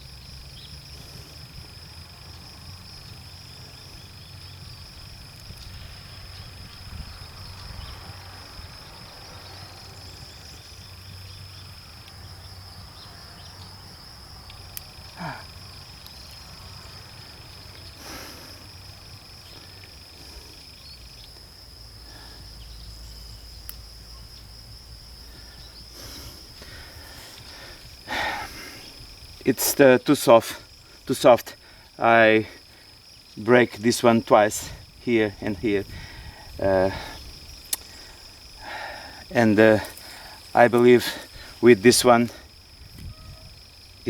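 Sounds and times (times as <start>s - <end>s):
insects trilling: 0.0s - 44.0s
lower insect trill: 0.0s - 44.0s
faint clicks: 23.6s - 23.8s, 37.6s - 38.0s.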